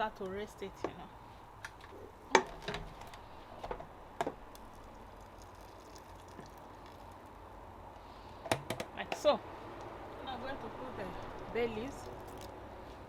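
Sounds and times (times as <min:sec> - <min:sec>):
water pouring: 0:04.5 - 0:07.4, 0:11.0 - 0:12.5.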